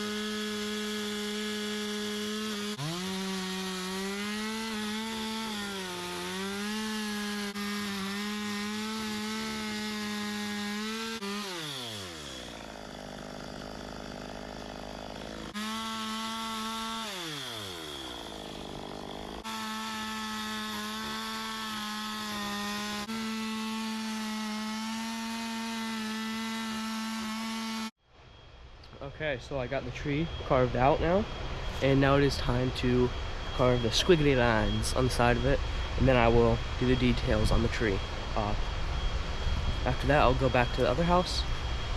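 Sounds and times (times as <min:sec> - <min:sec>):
chainsaw cutting wood: 0:00.0 - 0:27.9, 0:39.8 - 0:41.7.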